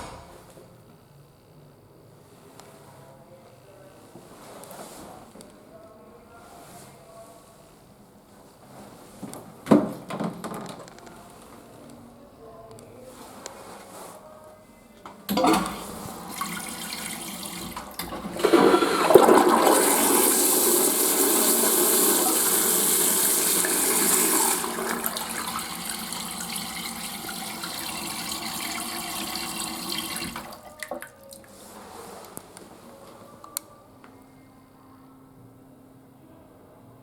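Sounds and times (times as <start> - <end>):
toilet flushing water rush: 15.3 - 31.0
toilet flush click: 15.3 - 31.1
toilet refill flow: 15.3 - 31.4.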